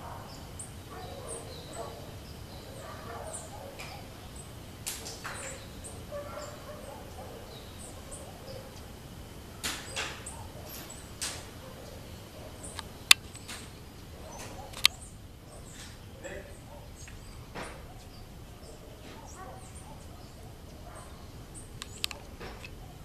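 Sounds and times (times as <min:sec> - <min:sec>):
birds chirping: 0:00.0 - 0:23.0
sharp clicks: 0:04.8 - 0:05.6, 0:09.6 - 0:11.6, 0:12.7 - 0:15.0, 0:21.7 - 0:22.8.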